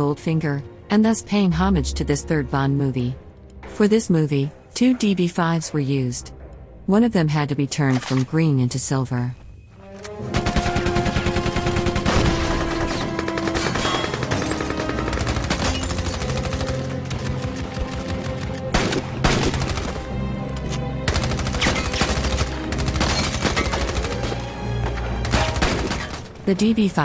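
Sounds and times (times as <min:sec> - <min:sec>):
film score music: 0:00.0 - 0:27.0
rapid automatic gunfire: 0:10.3 - 0:20.1, 0:21.1 - 0:24.4.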